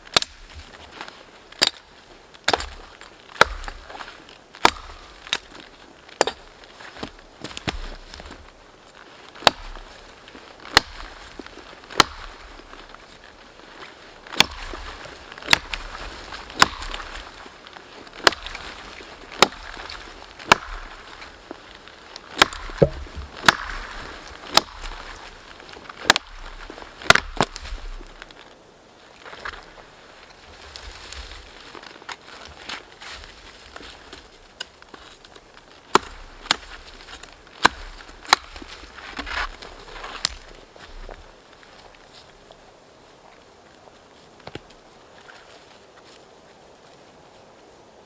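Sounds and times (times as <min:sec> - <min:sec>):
axe chopping wood: 0:00.1 - 0:00.5, 0:01.6 - 0:01.8, 0:02.5 - 0:05.5, 0:06.1 - 0:08.1, 0:09.4 - 0:09.8, 0:10.7 - 0:11.1, 0:11.9 - 0:12.4, 0:14.3 - 0:17.4, 0:18.2 - 0:18.7, 0:19.3 - 0:21.2, 0:22.3 - 0:25.3, 0:26.0 - 0:27.6, 0:35.9 - 0:39.6.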